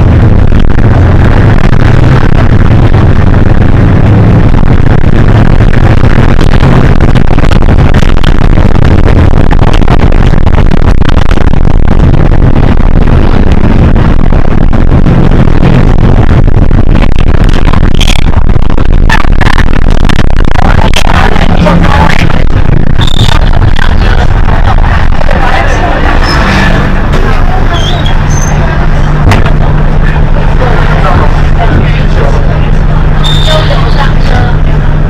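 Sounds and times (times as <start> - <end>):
bus engine drone: 0.0 - 35.0
road noise: 0.0 - 35.0.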